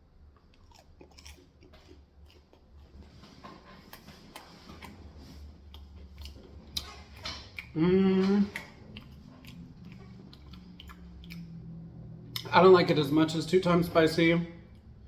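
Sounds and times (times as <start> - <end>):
person chewing food: 0.0 - 12.5
wet mouth clicks: 7.6 - 11.7.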